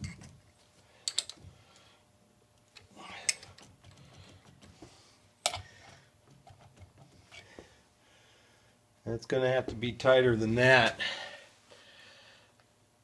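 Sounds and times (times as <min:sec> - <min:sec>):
metal parts clicking and clanking: 0:00.0 - 0:00.4, 0:01.0 - 0:01.4.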